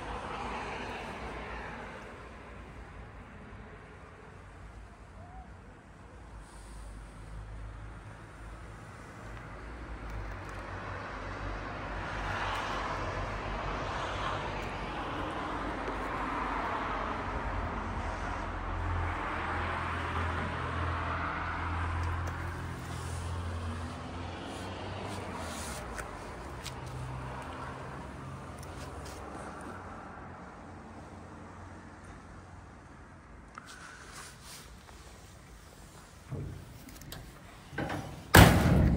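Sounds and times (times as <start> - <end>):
road or wind noise: 0.0 - 38.9
vehicle engine rumbling: 12.9 - 30.8, 32.1 - 38.9.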